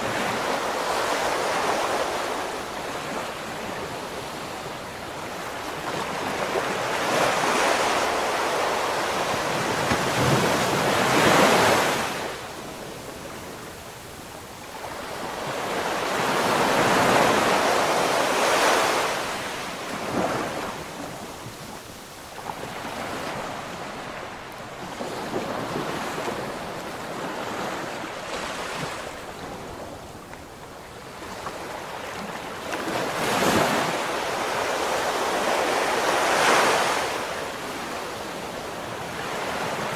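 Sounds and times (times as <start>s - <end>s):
ocean waves breaking: 0.0s - 13.8s.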